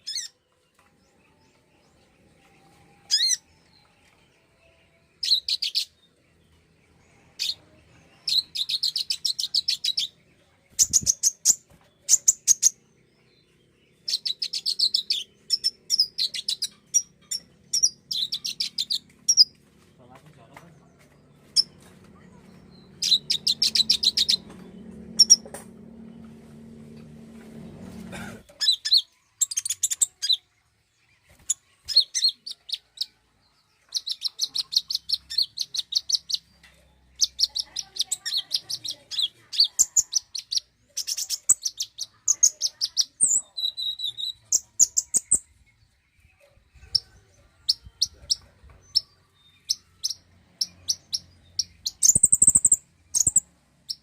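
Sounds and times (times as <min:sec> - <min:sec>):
bird chirping song: 0:00.0 - 0:54.0
low hum: 0:20.8 - 0:28.5.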